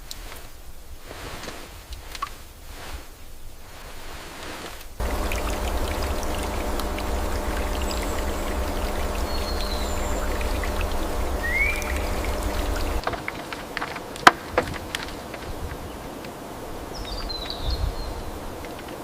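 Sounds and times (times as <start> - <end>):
waterfall rushing: 5.0 - 13.0.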